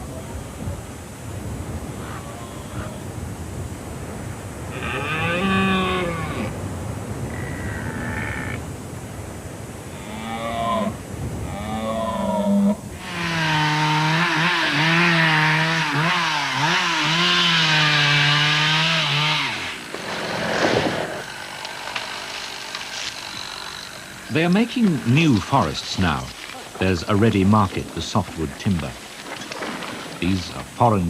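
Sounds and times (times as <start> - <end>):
deer stags roaring: 4.7 - 6.5.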